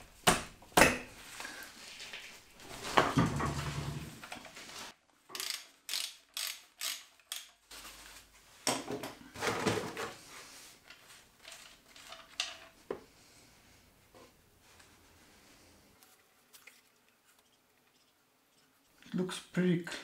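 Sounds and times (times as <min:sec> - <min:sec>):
ratchet wrench clicking: 0:05.3 - 0:07.5.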